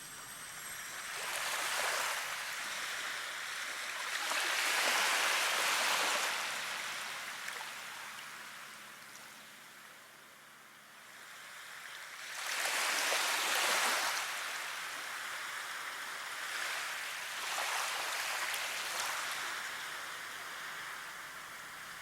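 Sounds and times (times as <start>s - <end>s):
rushing water: 0.0s - 9.6s.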